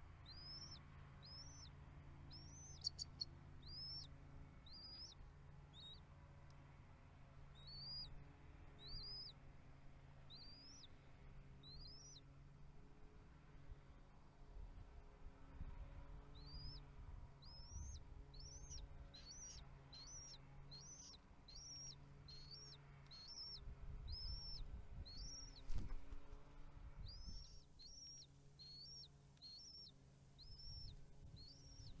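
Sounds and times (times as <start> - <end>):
bird's high rising call: 0.2 - 1.7, 2.3 - 4.1, 7.6 - 8.1, 17.4 - 25.9, 27.0 - 32.0.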